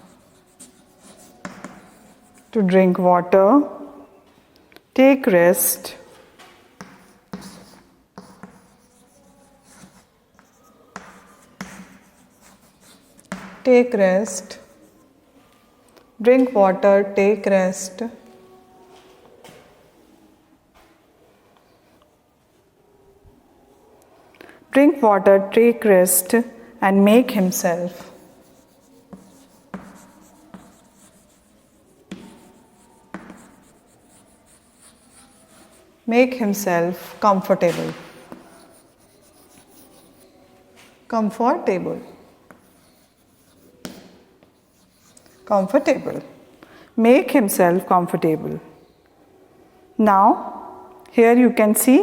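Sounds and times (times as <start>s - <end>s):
chalk tapping on board: 0.0s - 2.5s, 6.8s - 13.7s, 27.9s - 35.8s, 37.7s - 40.3s, 42.5s - 46.3s
writing scratching on board: 0.0s - 2.6s, 6.8s - 15.1s, 27.6s - 35.9s, 37.7s - 40.4s, 42.5s - 46.3s
pen strokes on paper: 6.8s - 15.1s, 27.4s - 36.0s, 36.8s - 40.4s, 42.5s - 46.3s.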